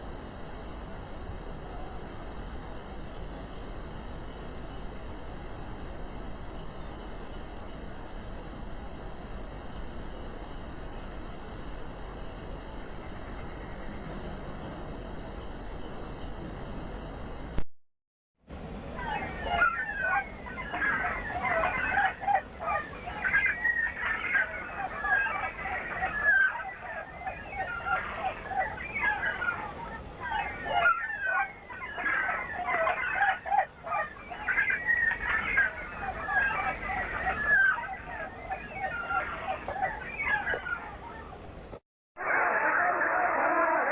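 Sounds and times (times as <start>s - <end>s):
faint bird chirps: 15.1s - 16.7s
chorus of short bird calls: 18.9s - 43.9s
chickens clucking: 19.0s - 41.4s.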